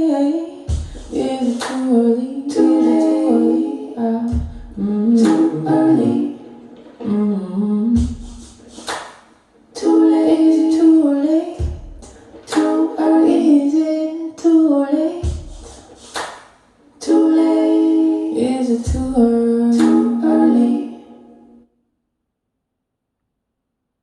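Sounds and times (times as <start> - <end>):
music over loudspeakers: 4.4 - 7.2, 8.0 - 9.3, 15.2 - 16.4.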